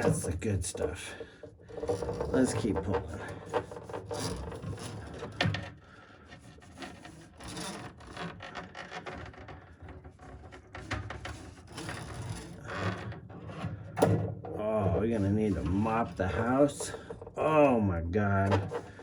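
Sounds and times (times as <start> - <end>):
drain snake cable scraping: 0.0 - 19.0.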